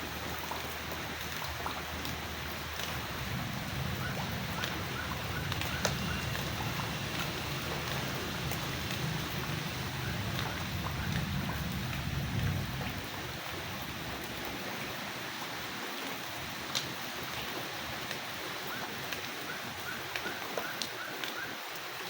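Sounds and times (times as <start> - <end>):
sharp water drops: 0.0 - 14.5
steady rain: 0.0 - 22.0
low rumble: 0.4 - 15.0.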